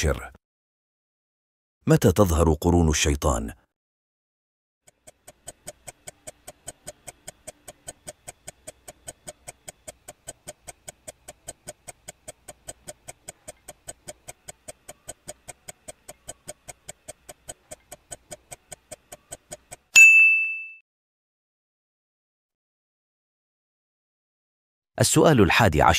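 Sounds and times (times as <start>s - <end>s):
clock ticking: 4.9s - 20.0s
bright ding: 20.0s - 20.8s.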